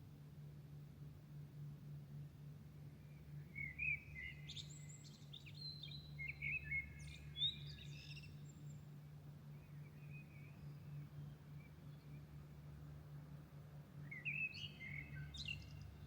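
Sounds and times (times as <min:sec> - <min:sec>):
songbird singing: 0:02.8 - 0:12.5, 0:14.0 - 0:16.0.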